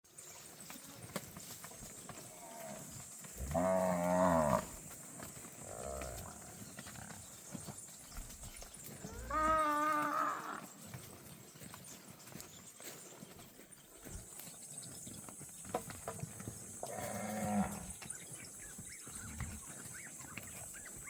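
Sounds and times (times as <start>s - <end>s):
cattle mooing: 3.4s - 4.7s, 9.1s - 10.7s.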